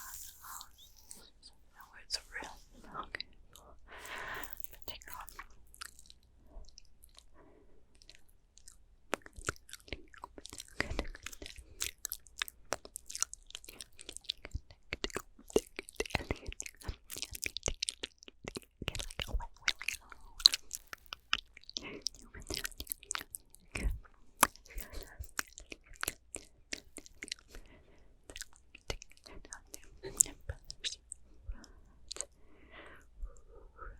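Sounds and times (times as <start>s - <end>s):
wet mouth clicks and pops: 8.1s - 27.6s.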